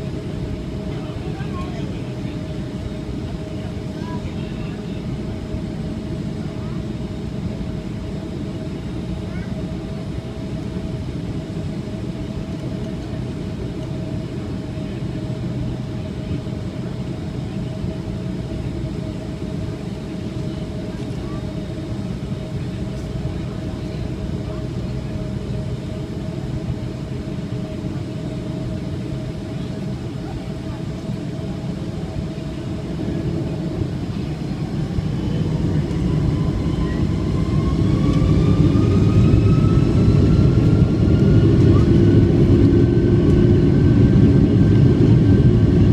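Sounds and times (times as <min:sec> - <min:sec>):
airplane cabin rumble: 0:00.0 - 0:45.9
rising engine whine: 0:16.8 - 0:45.9.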